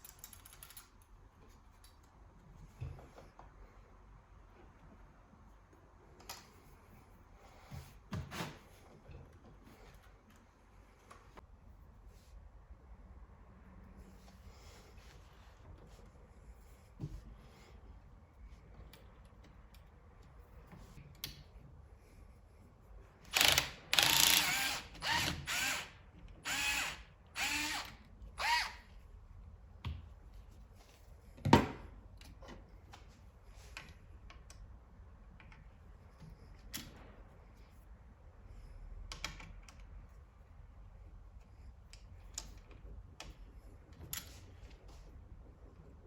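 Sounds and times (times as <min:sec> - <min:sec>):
small electric motor whirring: 0:23.3 - 0:28.8.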